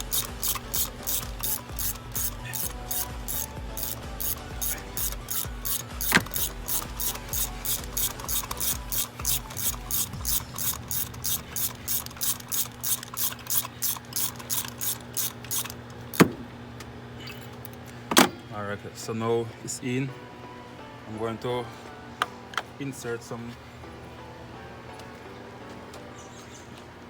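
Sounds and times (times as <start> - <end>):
hand ratchet clicking: 0.0 - 16.3.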